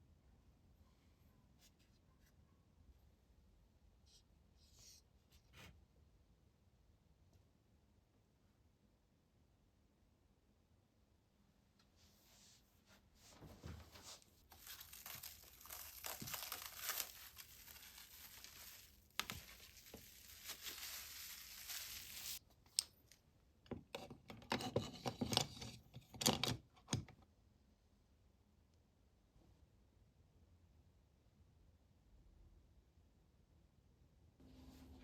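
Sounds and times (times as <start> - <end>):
packaging crinkling and rustling: 13.7 - 22.4
crackles and clicks: 14.4 - 23.2.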